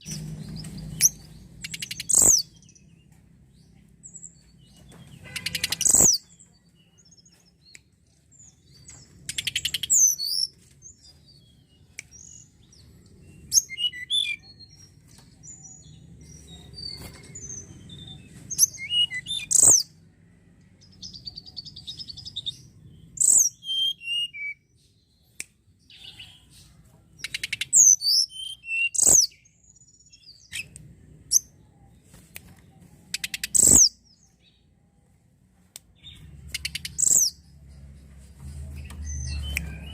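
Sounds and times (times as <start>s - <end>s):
sharp bird clicks: 0.0s - 2.8s, 5.0s - 6.4s, 8.9s - 10.4s, 27.2s - 28.2s, 32.2s - 34.0s, 35.8s - 37.3s
bird whistling and trilling: 0.8s - 2.6s, 5.3s - 6.3s, 13.5s - 14.6s, 16.8s - 19.9s, 23.2s - 24.6s, 27.2s - 29.5s, 33.2s - 34.0s, 36.5s - 37.4s.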